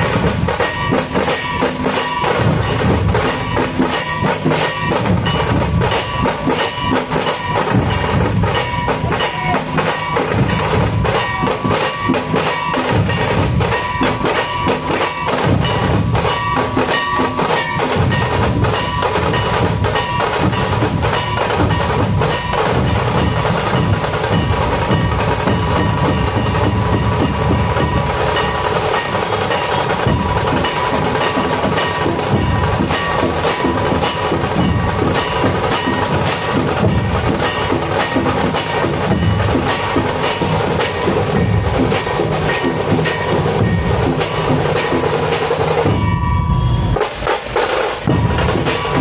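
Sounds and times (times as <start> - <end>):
dense continuous drumming: 0.0 - 49.0.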